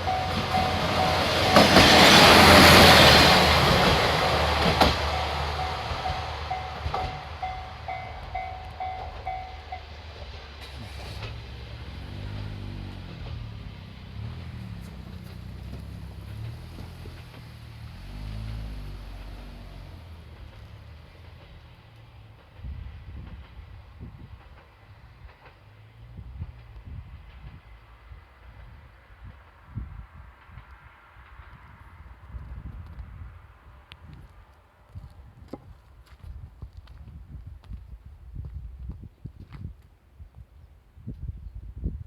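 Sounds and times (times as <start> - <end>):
crossing bell dinging: 0.0 - 10.1
train wheels clacking: 0.0 - 11.9.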